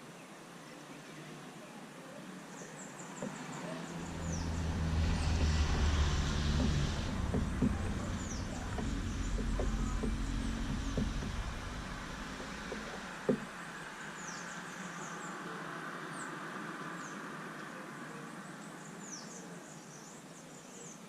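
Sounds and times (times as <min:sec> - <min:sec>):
downward-sweeping bird chirps: 0:03.1 - 0:13.7
vehicle passing by: 0:03.2 - 0:14.0
sharp knock: 0:04.0 - 0:13.5.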